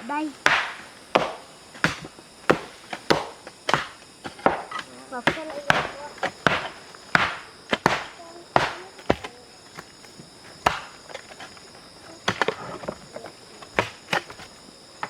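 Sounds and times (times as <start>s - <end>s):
insects droning: 0.0s - 15.0s
sharp knocks: 0.4s - 10.0s, 10.6s - 11.6s.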